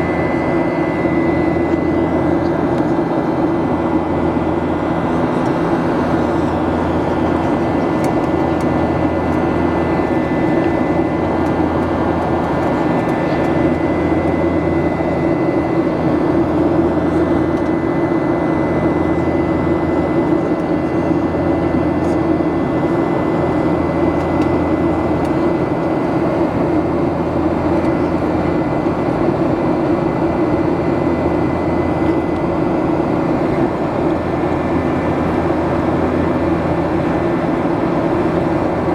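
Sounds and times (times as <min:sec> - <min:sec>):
jet engine roar in cabin: 0:00.0 - 0:38.9
thin steady whine: 0:00.0 - 0:38.9.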